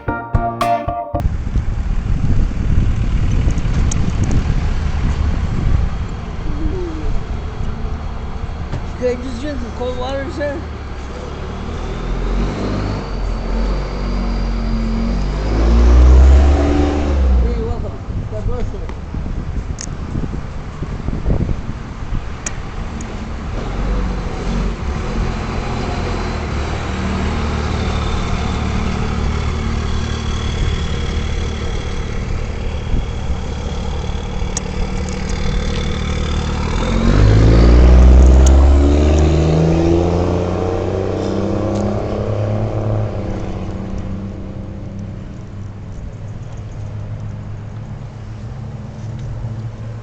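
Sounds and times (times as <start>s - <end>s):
vehicle accelerating nearby: 11.4s - 17.5s, 34.1s - 45.2s.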